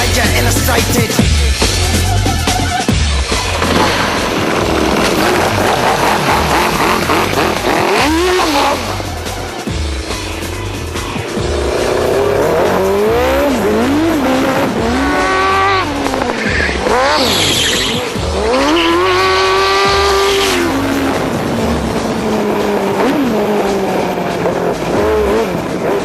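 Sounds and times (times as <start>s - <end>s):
go-kart engine revving: 0.0s - 26.0s
tyres squealing: 11.8s - 21.1s.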